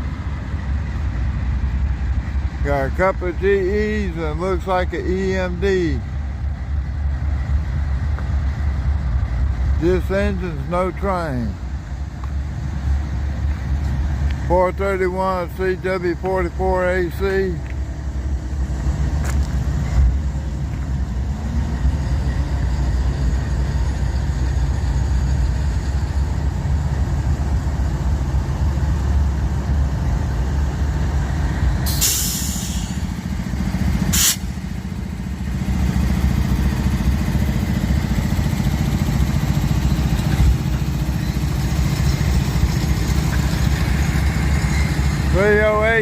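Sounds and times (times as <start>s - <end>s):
diesel locomotive engine rumble: 0.0s - 46.0s
air hiss: 31.8s - 33.0s, 34.1s - 34.6s.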